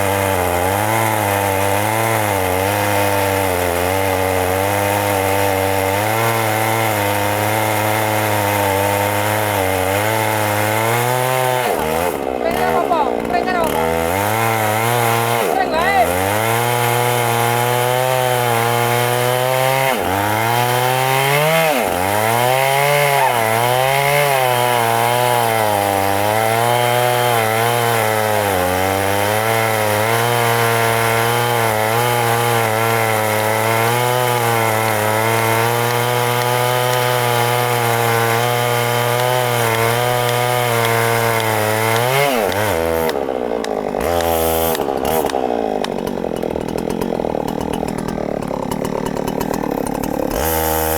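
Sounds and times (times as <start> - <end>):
chainsaw cutting tree trunk: 0.0 - 50.9.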